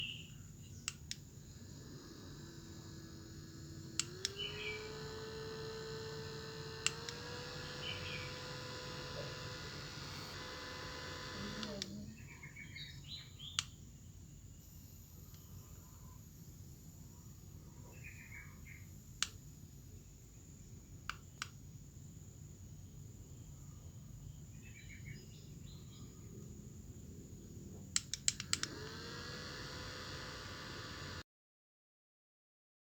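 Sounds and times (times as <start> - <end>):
small fan motor humming: 0.0 - 31.2.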